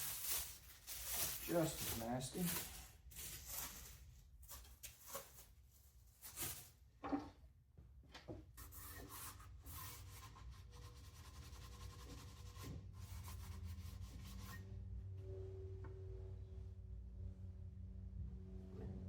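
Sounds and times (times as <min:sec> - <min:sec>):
rubbing and scraping strokes: 0:00.0 - 0:06.7, 0:08.6 - 0:14.7.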